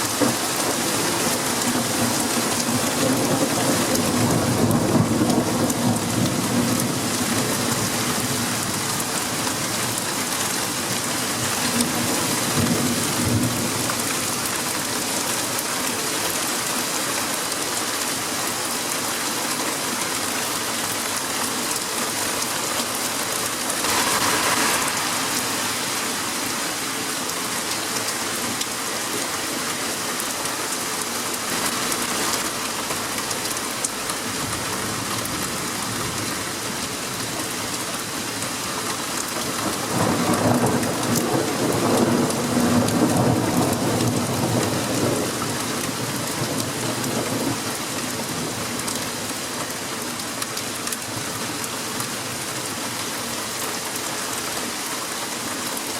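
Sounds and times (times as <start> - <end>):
heavy rain falling: 0.0 - 55.9
thunder rumbling: 23.5 - 27.8.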